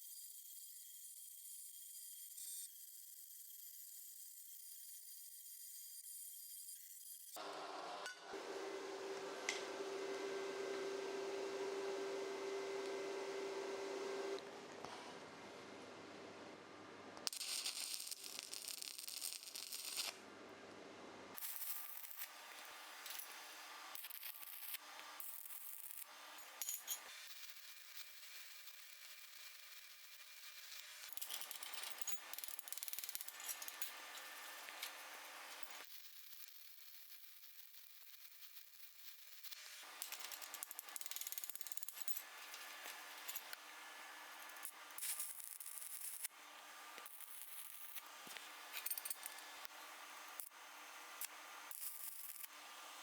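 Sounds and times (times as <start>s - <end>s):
welding arc crackling and hissing: 17.2s - 20.2s, 21.4s - 53.0s.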